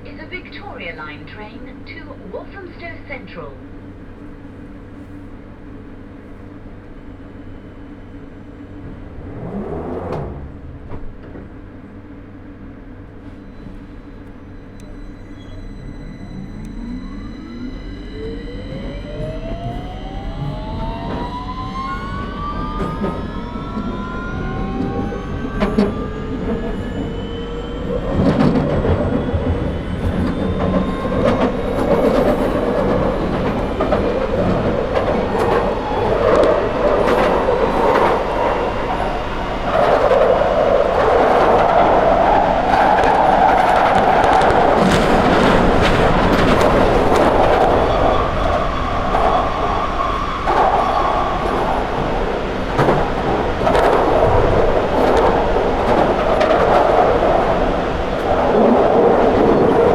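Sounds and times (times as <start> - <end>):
train motors whining: 0.0 - 59.9
train wheels rumbling: 0.0 - 59.9.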